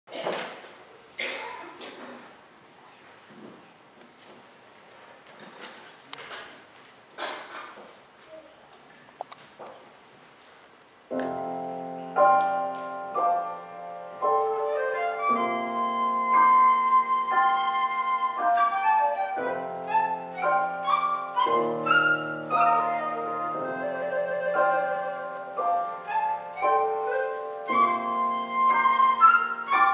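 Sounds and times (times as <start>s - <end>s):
piano accompaniment: 11.1s - 29.9s
flute melody: 11.2s - 29.9s.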